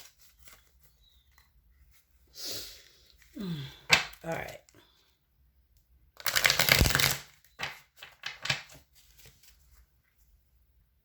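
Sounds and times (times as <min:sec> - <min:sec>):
cards being shuffled: 0:06.2 - 0:09.8.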